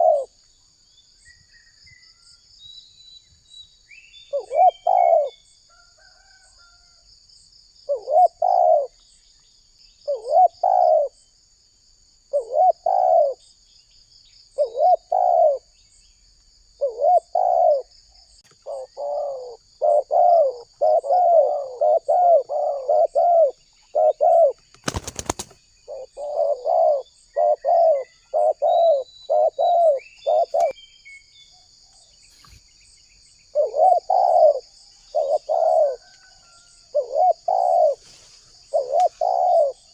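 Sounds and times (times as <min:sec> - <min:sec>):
dove cooing: 0:00.0 - 0:00.4, 0:04.3 - 0:05.4, 0:07.9 - 0:09.0, 0:10.1 - 0:11.2, 0:12.3 - 0:13.4, 0:14.6 - 0:15.7, 0:16.8 - 0:17.9, 0:18.5 - 0:30.8, 0:33.5 - 0:39.9.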